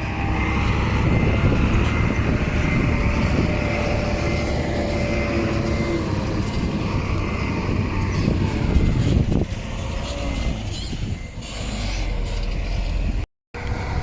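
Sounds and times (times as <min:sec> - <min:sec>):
diesel machinery engine: 0:00.0 - 0:14.0.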